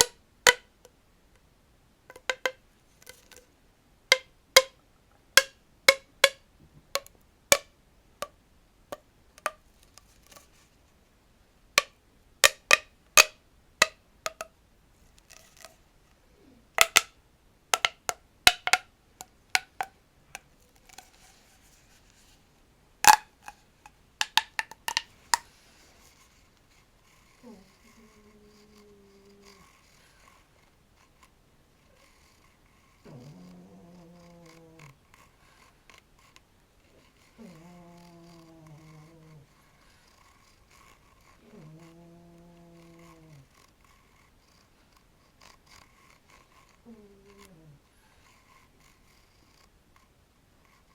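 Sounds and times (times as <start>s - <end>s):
collapsible tube clicking: 0.0s - 0.9s, 2.1s - 3.5s, 4.1s - 4.8s, 16.8s - 17.2s, 17.8s - 21.3s, 23.0s - 25.6s
faint scratching: 2.1s - 3.6s, 8.9s - 11.2s, 14.2s - 16.8s, 19.2s - 50.9s.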